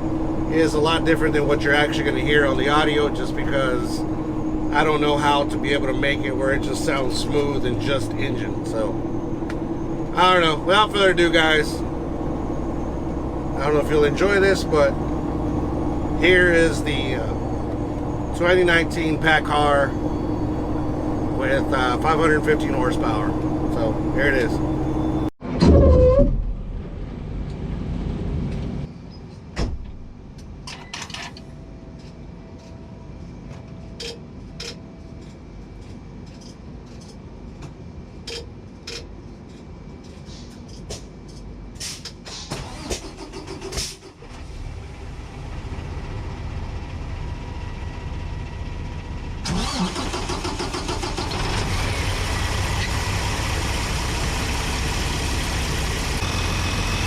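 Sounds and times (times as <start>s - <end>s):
diesel truck engine running: 0.0s - 25.4s, 42.6s - 57.0s.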